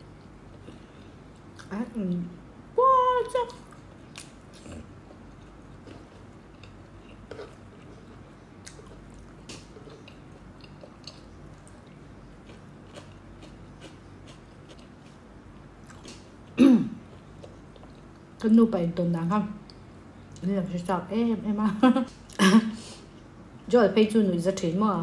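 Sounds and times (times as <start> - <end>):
soft chewing with wet clicks: 3.4 - 18.5, 19.6 - 20.5.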